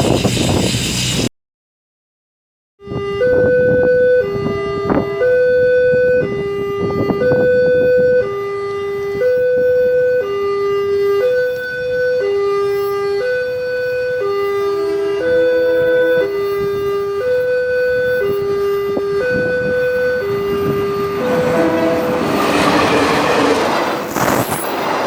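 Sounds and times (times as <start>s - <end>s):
rushing noise with knocks: 21.2s - 25.0s.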